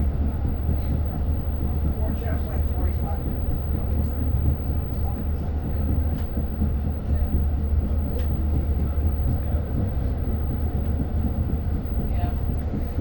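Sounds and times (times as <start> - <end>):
train rumbling: 0.0 - 13.0
sharp clicks from train wheels: 2.8 - 9.6.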